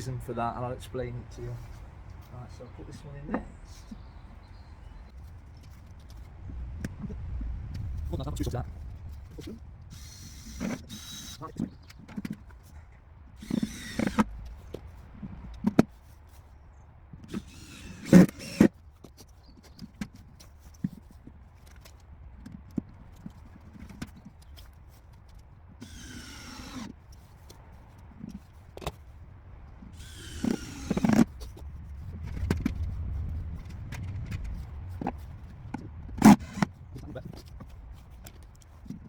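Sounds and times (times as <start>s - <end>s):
cordless drill driving screws: 9.9s - 11.5s, 13.4s - 14.3s, 17.3s - 18.7s, 25.8s - 26.9s, 30.0s - 31.3s, 36.2s - 36.7s.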